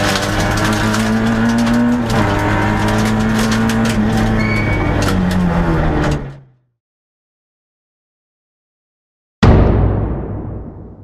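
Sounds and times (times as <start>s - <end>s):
car engine at high revs: 0.0s - 6.4s.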